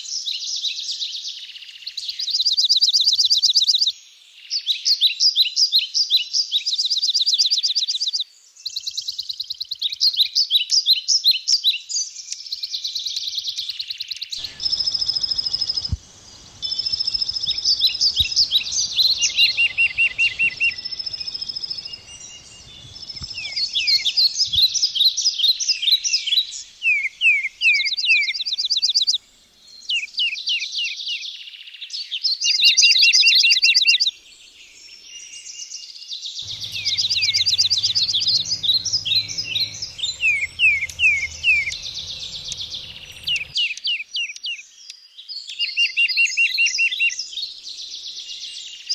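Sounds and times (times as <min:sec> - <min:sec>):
low steady hum: 0:14.4 - 0:25.7, 0:36.5 - 0:43.6
songbirds singing: 0:14.4 - 0:29.9, 0:36.4 - 0:45.2.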